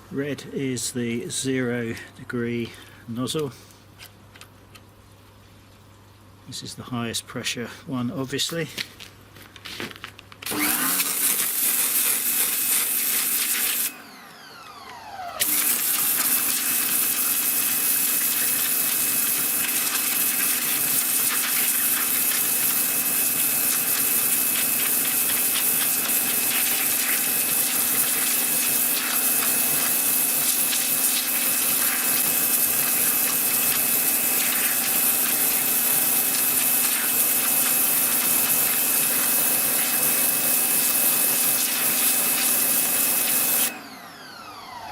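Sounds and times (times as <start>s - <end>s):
pressure washer motor hum: 10.4s - 44.9s
motor winding down whine: 10.5s - 12.6s, 13.8s - 44.9s
high-pressure water jet hissing: 10.5s - 13.9s, 15.4s - 43.7s.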